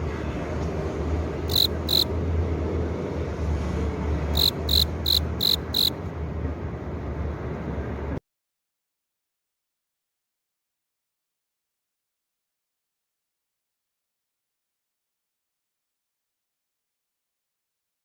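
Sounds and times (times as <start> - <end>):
cricket chirping: 1.5 - 2.1, 4.4 - 6.0.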